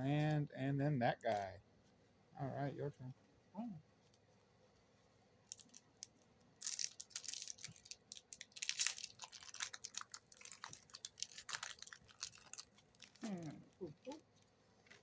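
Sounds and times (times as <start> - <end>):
foil pack crinkling and tearing: 6.6 - 13.3.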